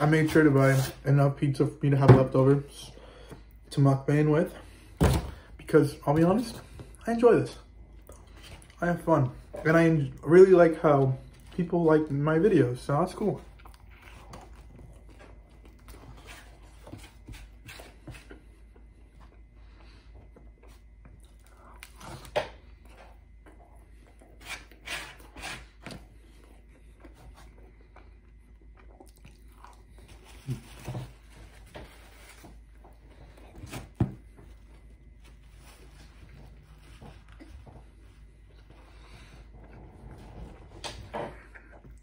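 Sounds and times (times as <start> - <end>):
chewing and biting pizza: 13.3 - 31.6.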